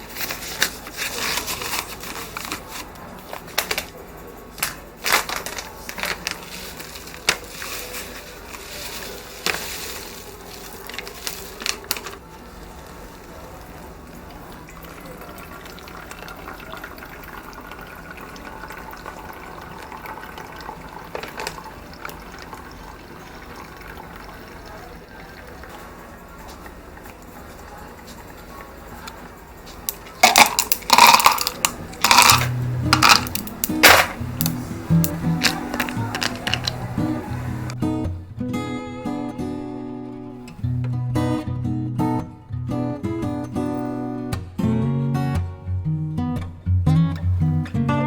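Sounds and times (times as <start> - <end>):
dishes and utensils clinking: 29.9 - 37.8
water being poured: 30.2 - 36.8.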